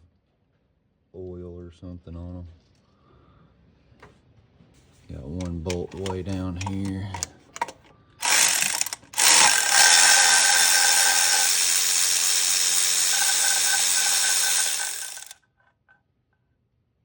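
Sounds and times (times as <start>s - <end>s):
power tool running: 8.2s - 15.4s.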